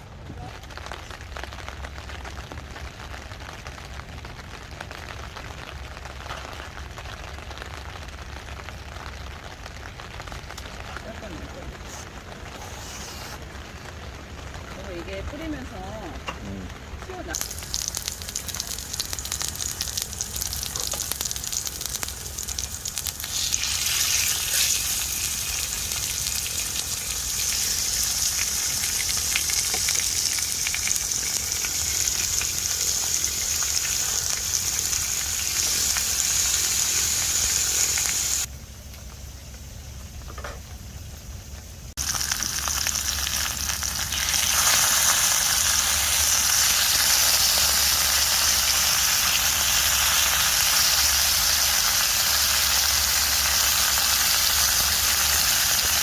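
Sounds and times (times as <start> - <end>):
food sizzling in hot oil: 17.0 - 38.5, 41.9 - 56.0.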